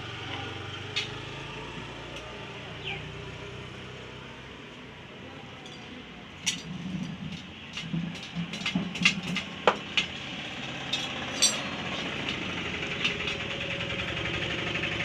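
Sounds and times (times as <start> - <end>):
motor engine idling: 0.0 - 15.0
metal clinks and taps: 5.6 - 12.4.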